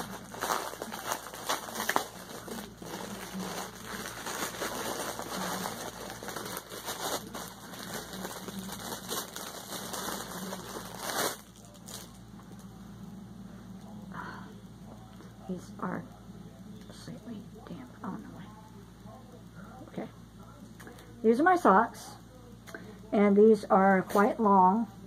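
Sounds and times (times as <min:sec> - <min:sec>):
packaging rustling and crinkling: 0:00.0 - 0:12.7.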